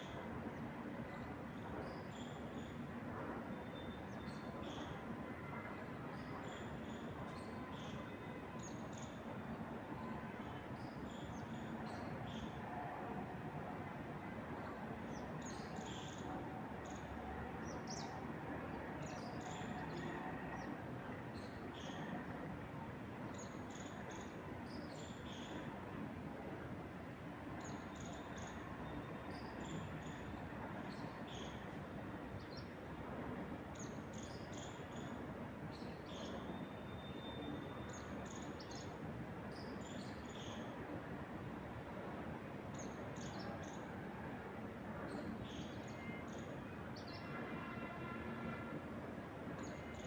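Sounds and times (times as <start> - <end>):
wind through trees: 0.0 - 50.0.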